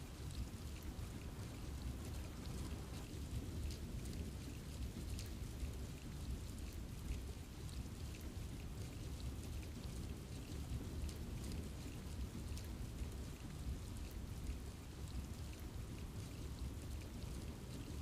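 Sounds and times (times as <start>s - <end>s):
low even rain rumble: 0.0s - 18.0s
rain drops pattering on leaves: 0.0s - 18.0s.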